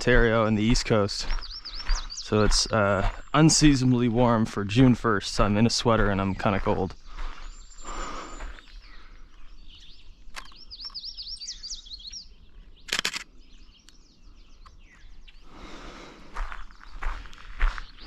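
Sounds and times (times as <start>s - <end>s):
footsteps: 0.0s - 8.8s, 15.6s - 18.0s
faint background birds: 0.0s - 18.0s
songbird singing: 0.0s - 18.0s.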